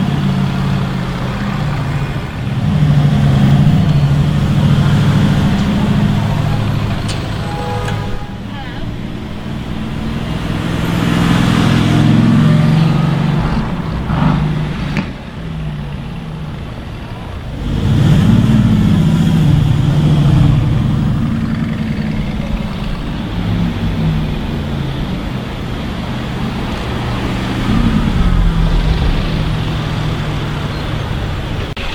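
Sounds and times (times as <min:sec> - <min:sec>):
car engines accelerating: 0:00.0 - 0:31.9
quiet traffic noise: 0:00.0 - 0:31.9.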